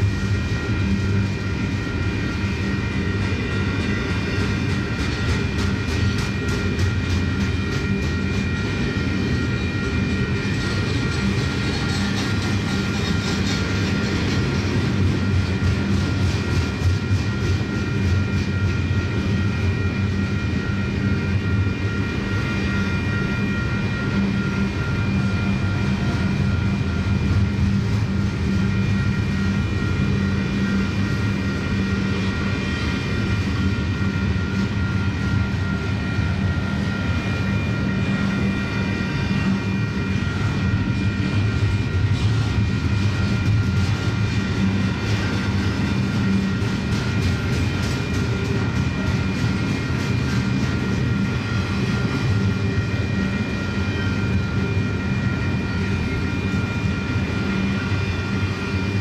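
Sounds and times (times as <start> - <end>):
wheels rumbling on rail: 10.4 - 19.1, 41.3 - 52.3.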